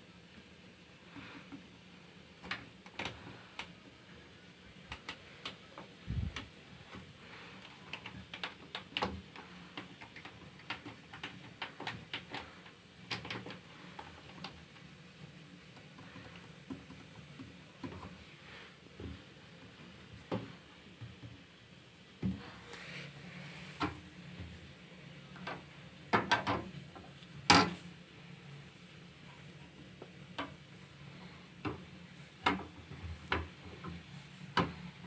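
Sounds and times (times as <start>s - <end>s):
small clicks and taps: 2.4s - 3.8s, 4.9s - 14.9s, 32.4s - 34.8s.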